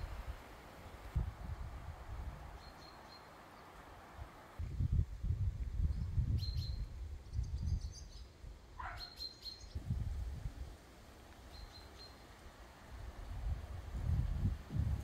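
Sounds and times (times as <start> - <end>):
wind buffeting microphone: 0.0 - 2.7, 4.6 - 8.1, 9.8 - 10.8, 12.9 - 15.0
bird chirping: 2.6 - 3.8, 6.4 - 9.8, 11.5 - 12.2.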